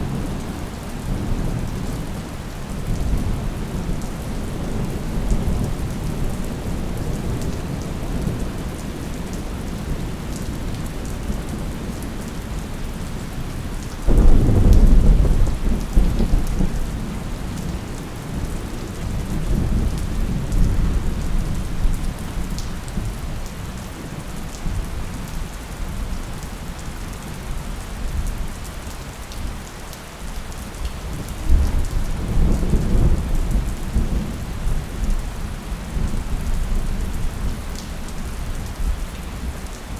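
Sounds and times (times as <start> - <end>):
steady rain: 0.0 - 39.9
thunder crack and rumble: 14.1 - 23.1, 31.1 - 37.9.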